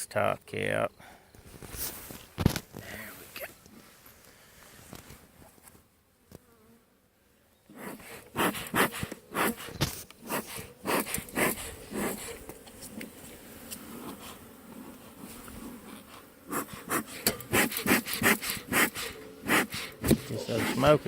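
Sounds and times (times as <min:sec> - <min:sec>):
bees buzzing: 0:07.7 - 0:21.0.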